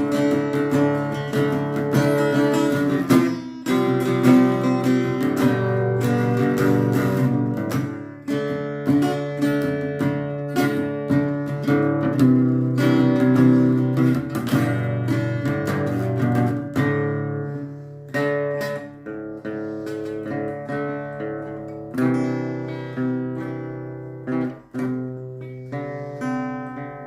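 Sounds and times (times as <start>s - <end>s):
acoustic guitar strumming chords: 0.0s - 27.0s.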